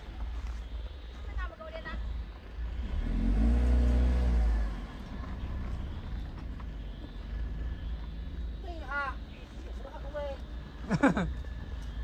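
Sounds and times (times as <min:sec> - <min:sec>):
car engine revving hard: 0:02.8 - 0:05.0.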